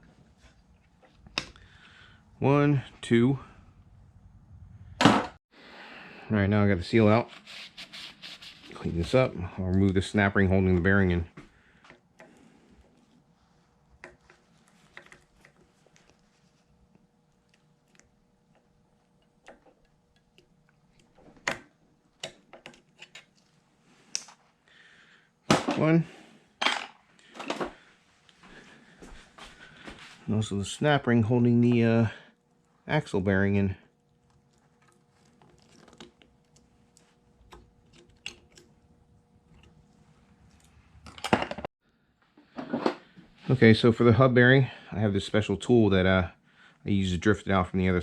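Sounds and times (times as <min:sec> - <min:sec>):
small metallic clicks and scrapes: 0:22.2 - 0:23.5.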